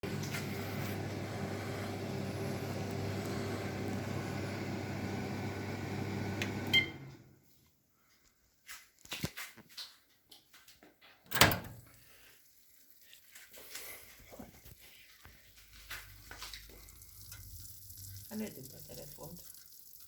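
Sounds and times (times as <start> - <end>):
microwave oven humming: 0.0 - 7.4
microwave beep: 2.0 - 7.3.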